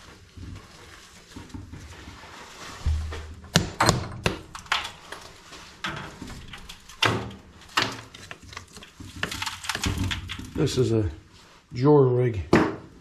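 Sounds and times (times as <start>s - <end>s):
tools knocking and clanking: 2.9s - 5.1s.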